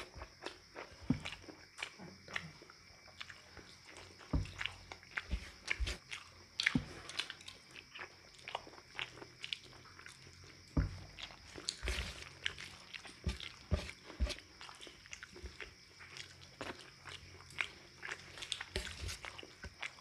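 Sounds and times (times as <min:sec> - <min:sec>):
person chewing food: 0:00.0 - 0:20.0
soft low thumps: 0:04.3 - 0:06.0.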